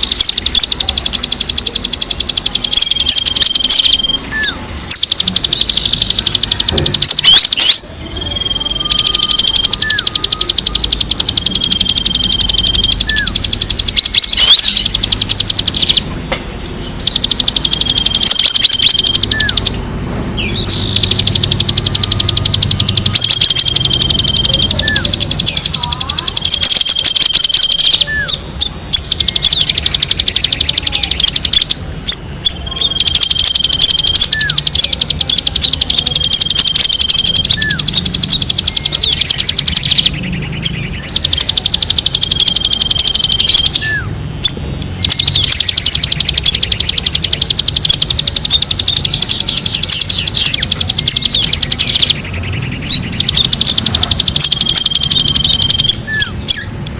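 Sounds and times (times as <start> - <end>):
songbird chirping rapidly: 0.0 - 56.9.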